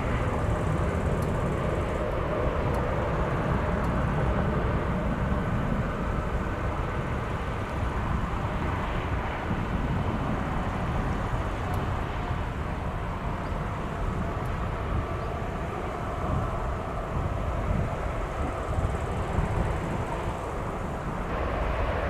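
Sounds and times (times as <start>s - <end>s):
faint engine whine: 0.0s - 22.0s
jet engines rumbling: 0.0s - 22.0s.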